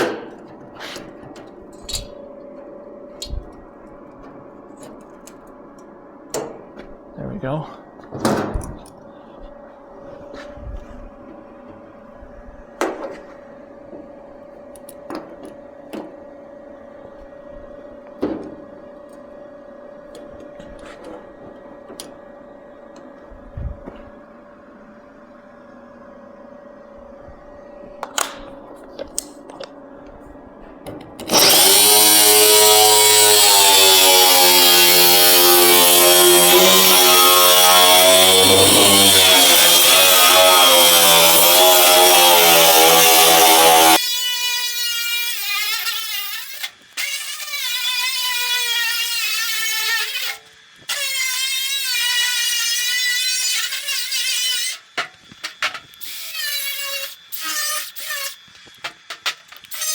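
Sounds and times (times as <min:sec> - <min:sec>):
power tool cutting sheet metal: 0:31.2 - 0:59.9.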